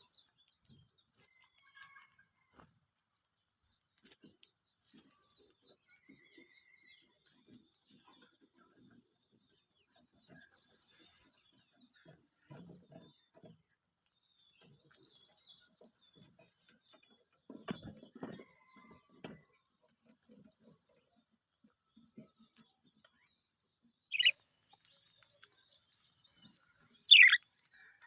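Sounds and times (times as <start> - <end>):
budgerigars twittering: 24.1 - 24.4, 27.1 - 27.4.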